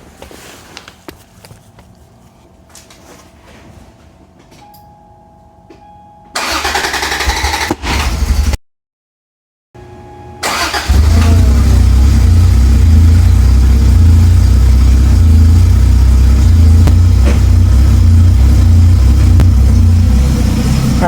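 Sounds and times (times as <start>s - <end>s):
car engine starting and idling: 6.4s - 8.6s, 10.4s - 21.0s.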